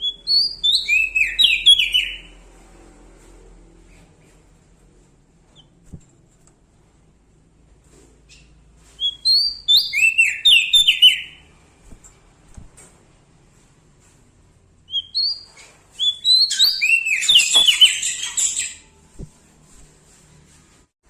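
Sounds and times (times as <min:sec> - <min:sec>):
songbird whistling downward notes: 0:00.0 - 0:02.3, 0:09.0 - 0:11.4, 0:14.9 - 0:18.8.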